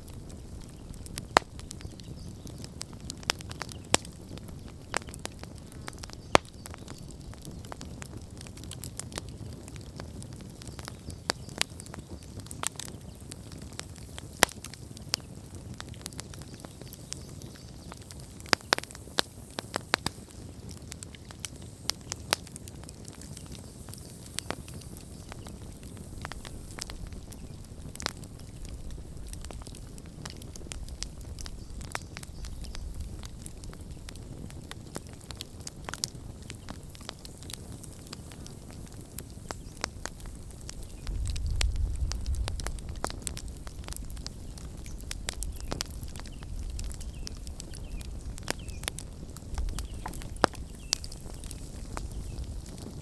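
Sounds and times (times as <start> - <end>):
campfire crackling and popping: 0.0 - 53.0
rush of flame: 17.9 - 53.0.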